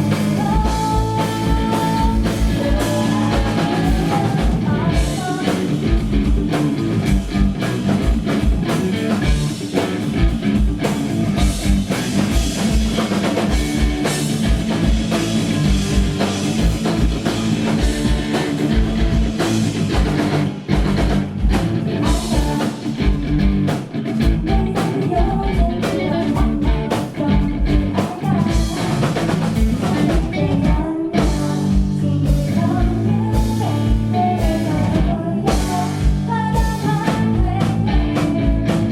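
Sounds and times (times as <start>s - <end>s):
woman singing: 0.0s - 6.1s, 22.0s - 23.5s, 24.2s - 38.9s
heavy metal band playing: 0.0s - 38.9s
rapid kick drum beats: 0.0s - 38.9s.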